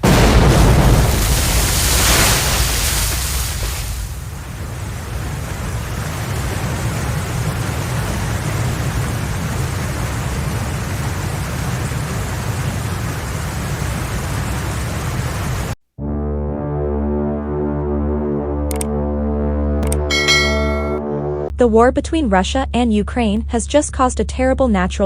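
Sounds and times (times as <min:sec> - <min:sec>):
floodwater rushing with low rumble: 0:00.0 - 0:15.8.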